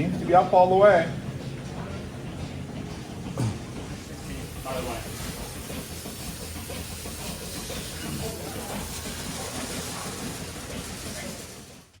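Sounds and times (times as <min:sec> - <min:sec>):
hissing machine noise: 0:00.0 - 0:12.0
faint voices: 0:06.9 - 0:11.8.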